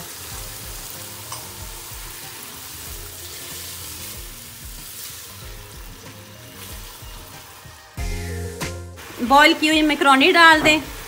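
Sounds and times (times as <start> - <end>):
spatula stirring in pan: 0.0 - 9.2
vegetables sizzling in hot oil: 0.0 - 11.0.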